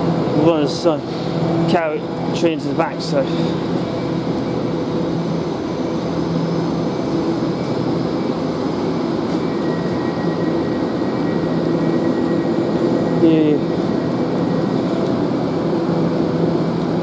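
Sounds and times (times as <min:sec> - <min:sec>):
electric train hum: 0:00.0 - 0:17.0
faint high whine: 0:00.0 - 0:17.0.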